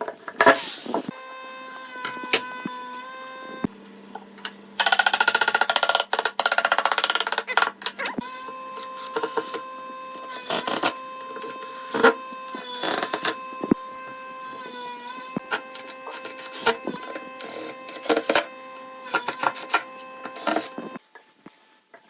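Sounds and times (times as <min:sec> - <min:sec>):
power tool working wood: 0:00.0 - 0:21.0
steady hum: 0:07.2 - 0:21.0.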